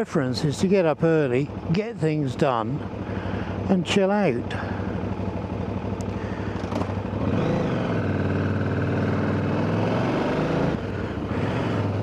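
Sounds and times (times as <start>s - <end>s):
motorcycle engine pulling away: 6.2s - 12.0s.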